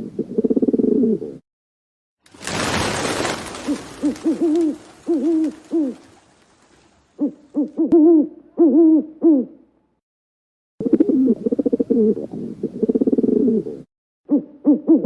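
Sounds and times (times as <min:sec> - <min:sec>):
bird hooting: 0:03.7 - 0:06.2, 0:07.2 - 0:09.6, 0:10.8 - 0:15.0.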